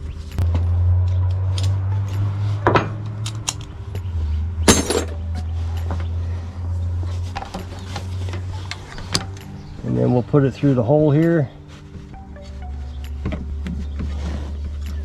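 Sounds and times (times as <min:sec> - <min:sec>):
metallic clinks of tools: 0:04.7 - 0:06.0.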